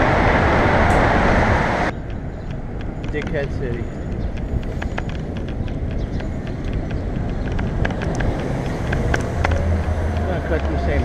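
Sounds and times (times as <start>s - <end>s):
road and traffic noise: 0.0s - 11.0s
wind rumbling on microphone: 0.0s - 11.0s
small clicks and rattles: 2.0s - 10.9s.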